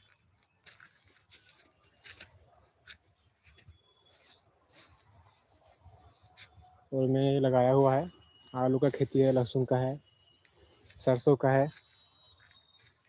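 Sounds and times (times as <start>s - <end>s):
faint rustles and scrapes: 0.8s - 11.0s.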